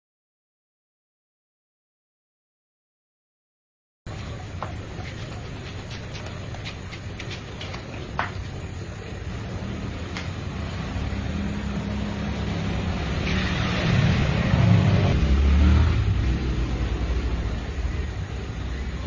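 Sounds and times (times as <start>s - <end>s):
vehicle engine humming: 4.1s - 19.0s.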